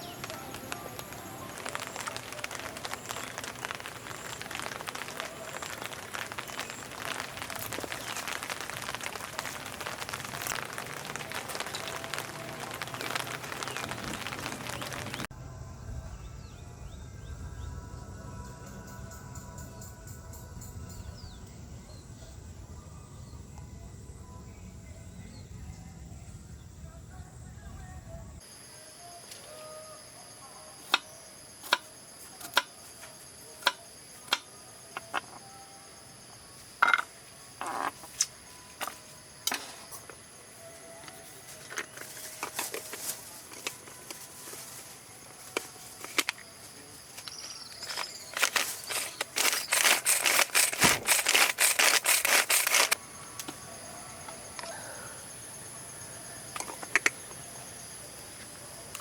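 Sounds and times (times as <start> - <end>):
insects droning: 0.0 - 59.0
dense rattle of rapid clicks: 47.9 - 53.0.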